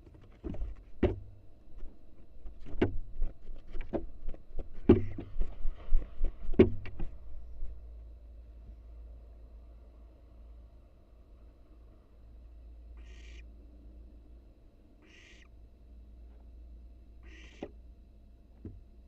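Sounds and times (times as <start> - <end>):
wings thumping wooden box: 0.4 - 1.3, 2.5 - 5.6, 6.2 - 7.2.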